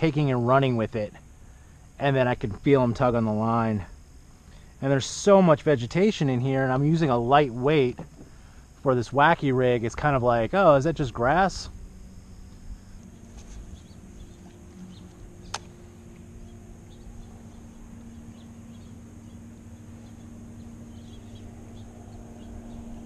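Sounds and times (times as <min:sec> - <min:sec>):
steady low hum: 0:00.0 - 0:23.0
sharp click: 0:15.5 - 0:15.8.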